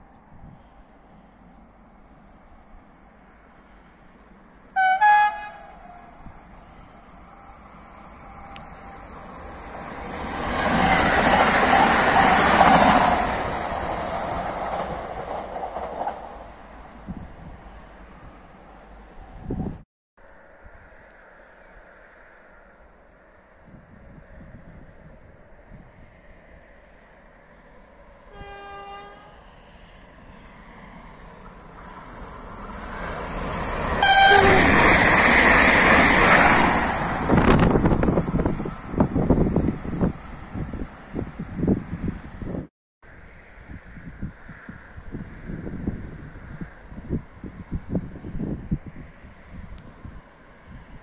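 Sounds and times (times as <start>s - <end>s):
train passing at speed: 0.0s - 19.8s, 20.4s - 51.0s
train horn toot: 4.7s - 6.3s, 28.3s - 29.5s, 34.0s - 34.9s
train wheels rolling on rails: 6.2s - 17.1s, 29.6s - 42.6s.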